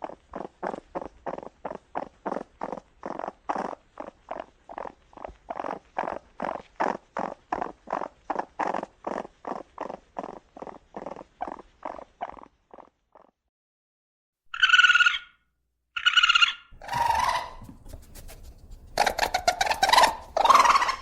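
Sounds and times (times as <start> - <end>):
raccoon churring: 0.0 - 13.3, 14.5 - 15.3, 16.0 - 21.0
raccoon high-pitched calls: 14.5 - 15.4, 16.0 - 21.0
raccoon rough call: 16.0 - 21.0.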